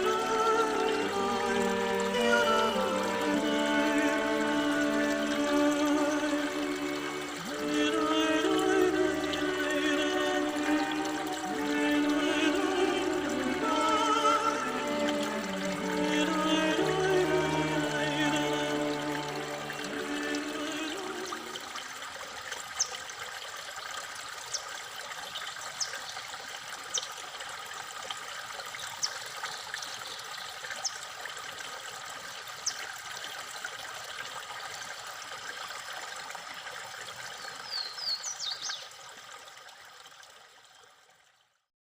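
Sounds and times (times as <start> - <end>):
running water: 0.0 - 41.7
bird chirping: 37.4 - 38.9.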